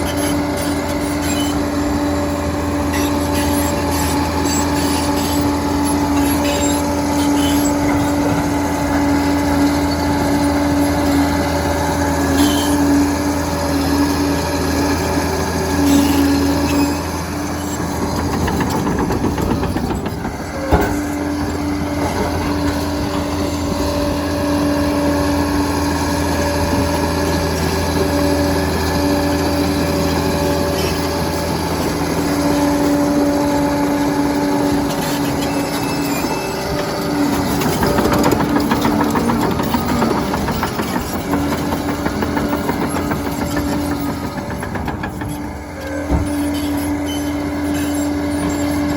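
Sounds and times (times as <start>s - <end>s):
diesel engine under load: 0.0s - 48.9s
tracks clattering: 17.5s - 24.5s, 34.7s - 47.1s.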